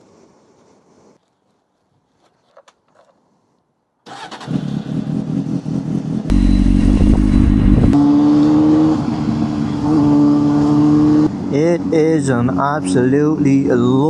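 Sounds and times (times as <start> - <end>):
motorcycle engine starting: 4.1 - 8.1.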